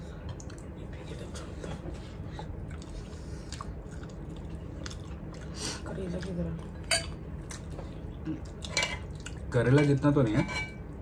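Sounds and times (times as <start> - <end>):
chewing and biting food: 2.4 - 9.5.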